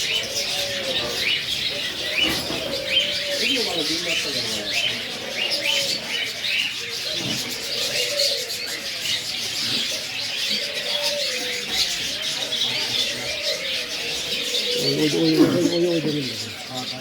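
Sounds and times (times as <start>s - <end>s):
small birds chirping: 0.0s - 17.0s
low cooing: 13.0s - 16.8s.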